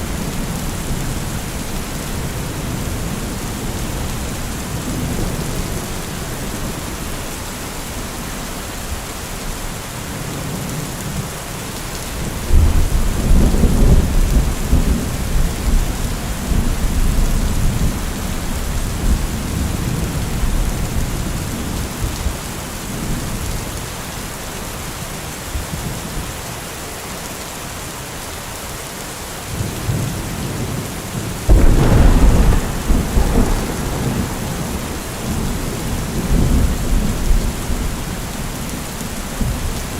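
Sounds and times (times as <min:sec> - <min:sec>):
steady rain: 0:00.0 - 0:39.9
thunder rolling: 0:31.5 - 0:38.5.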